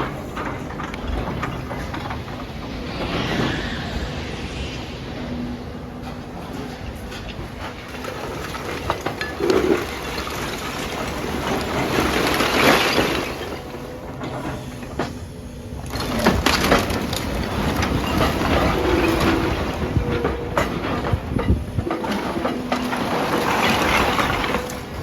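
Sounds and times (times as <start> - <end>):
masonry cracking and crashing: 22.9 - 24.8.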